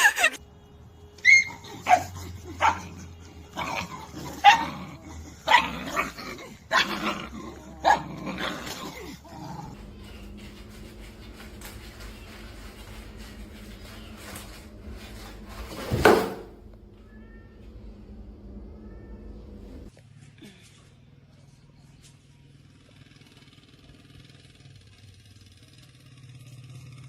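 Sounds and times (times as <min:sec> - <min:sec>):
dog barking: 0:01.2 - 0:04.7, 0:05.5 - 0:06.1, 0:07.8 - 0:08.2
faint steady hum: 0:16.5 - 0:22.5.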